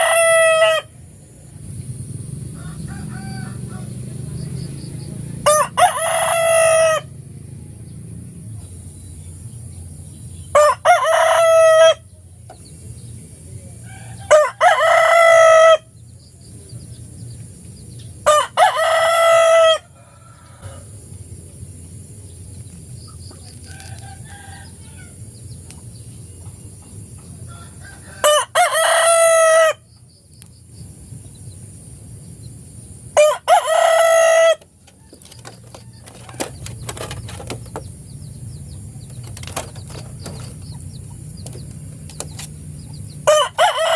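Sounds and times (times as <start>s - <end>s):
rooster crowing: 0.0s - 1.0s, 2.4s - 4.4s, 5.4s - 7.3s, 10.5s - 12.2s, 13.8s - 16.0s, 18.2s - 21.1s, 23.6s - 25.2s, 27.3s - 30.0s, 33.2s - 37.0s, 42.9s - 43.9s.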